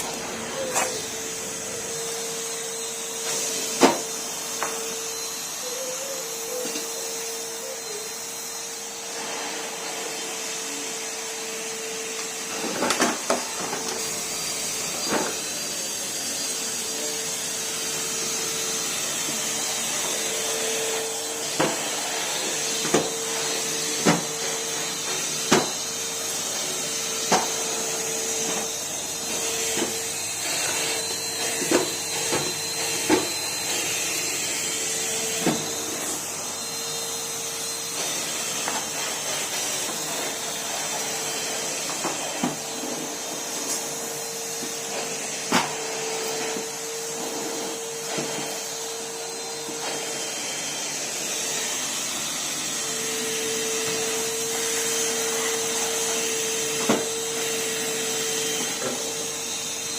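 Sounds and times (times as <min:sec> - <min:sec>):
vacuum cleaner running: 0:00.0 - 0:59.9
hose and floor tool knocking: 0:56.7 - 0:57.2.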